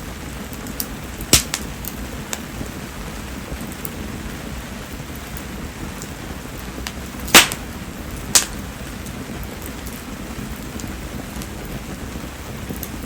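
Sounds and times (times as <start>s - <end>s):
fire popping: 0.0s - 13.0s
firewood burning: 0.0s - 13.0s
steady rain: 0.0s - 13.0s.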